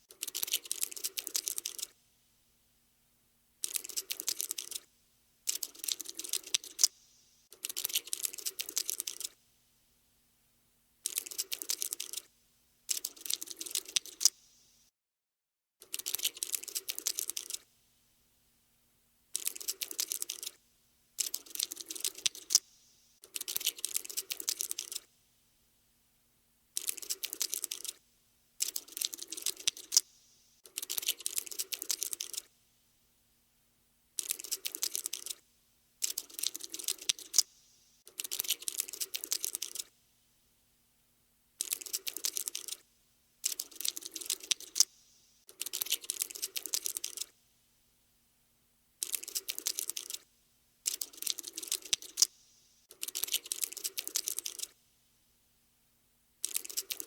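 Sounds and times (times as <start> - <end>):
cockroach skittering clicks: 0.1 - 2.0, 3.6 - 9.4, 11.0 - 12.3, 12.9 - 14.8, 15.8 - 17.7, 19.3 - 20.6, 21.2 - 25.1, 26.8 - 28.0, 28.6 - 32.5, 34.2 - 35.4, 36.0 - 39.9, 41.6 - 42.8, 43.4 - 47.4, 49.0 - 54.8, 56.4 - 57.0.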